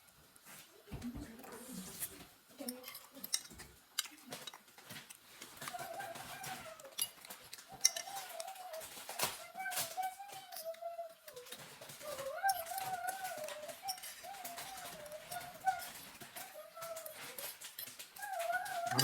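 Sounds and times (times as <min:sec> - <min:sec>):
high wavering voice-like hum: 0:18.2 - 0:19.0.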